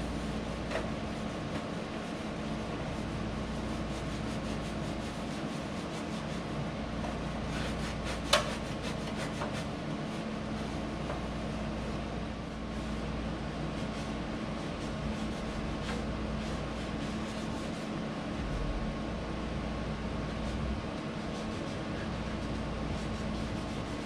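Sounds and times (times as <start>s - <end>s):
scrubbing and wiping metal: 0.0s - 24.0s
steady hum: 0.0s - 24.0s.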